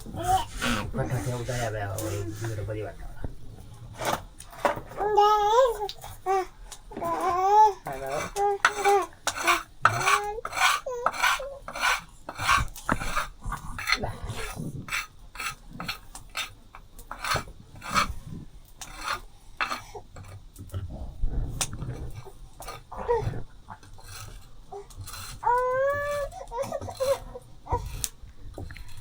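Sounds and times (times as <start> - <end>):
metal utensils scraping and clinking: 3.8 - 6.4, 7.0 - 18.2, 23.8 - 29.0.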